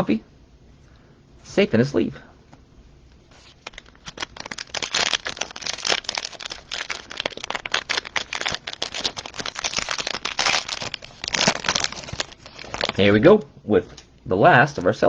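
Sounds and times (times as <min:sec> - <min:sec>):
cellophane wrapper crackling: 0:03.3 - 0:13.3.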